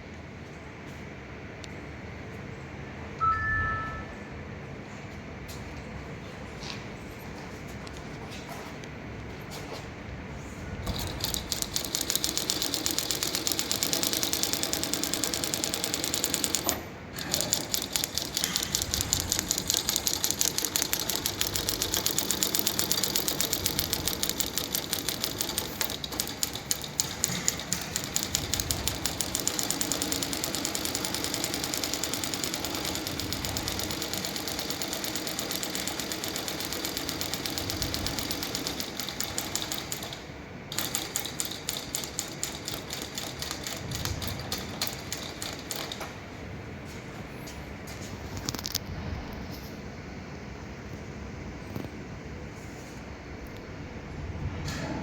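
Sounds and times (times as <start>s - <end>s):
sewing machine clattering: 10.8s - 46.2s.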